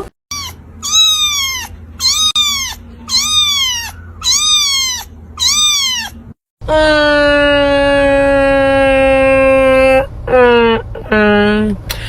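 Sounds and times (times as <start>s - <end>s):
cat meowing: 0.0s - 6.4s.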